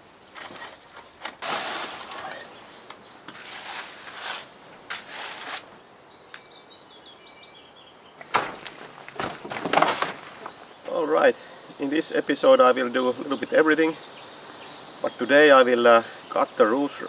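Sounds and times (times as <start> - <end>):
rushing rustling noise: 1.4 - 2.8
small bird singing: 2.1 - 3.6, 5.7 - 8.4, 10.4 - 17.0.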